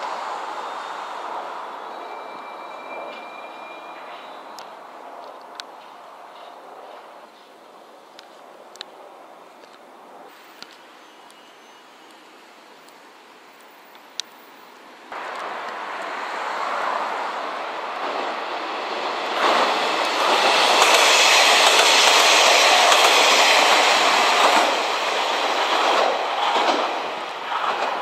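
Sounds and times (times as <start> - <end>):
train wheels clattering over rails: 17.9 - 28.0.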